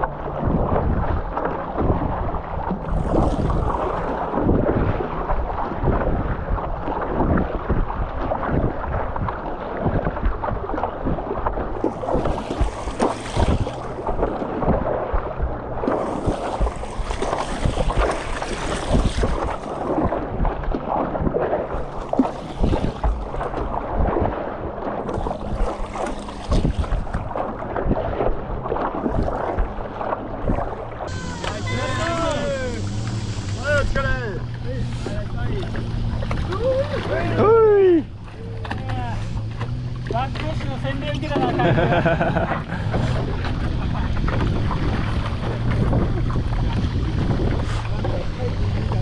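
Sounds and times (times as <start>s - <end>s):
choppy sea water: 0.0s - 49.0s
wind buffeting microphone: 0.0s - 49.0s
hissing splashes: 11.7s - 14.9s, 15.8s - 20.2s, 28.7s - 49.0s
low hum: 22.9s - 49.0s.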